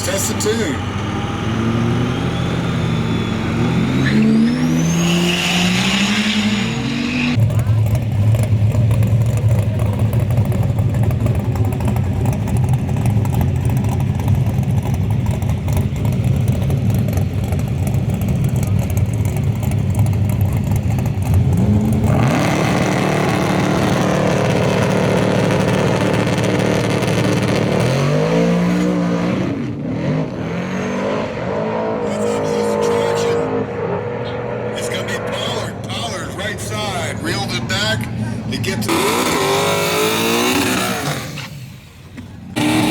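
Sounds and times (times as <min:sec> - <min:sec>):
engine revving in rising sweeps: 0:00.0 - 0:07.4, 0:21.5 - 0:37.4, 0:38.5 - 0:41.9, 0:42.6 - 0:42.9
truck engine rumble: 0:00.0 - 0:30.6, 0:32.0 - 0:42.9.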